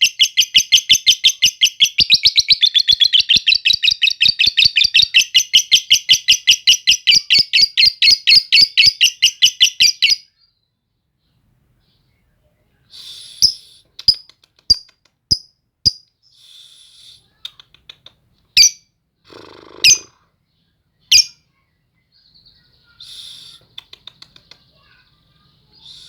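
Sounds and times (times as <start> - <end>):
lovebird shrill chirps: 0.0 - 10.4, 13.2 - 16.0, 18.6 - 18.9, 19.8 - 20.2, 21.1 - 21.4
bird scratchy chattering: 19.3 - 20.2, 23.0 - 25.0.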